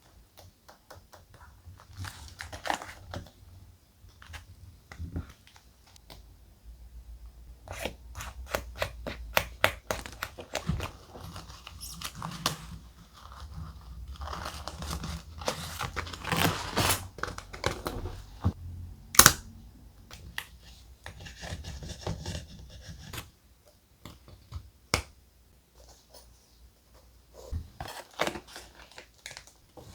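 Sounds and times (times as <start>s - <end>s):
paper rustling: 9.9s - 18.5s
paper tearing and crinkling: 10.8s - 18.2s.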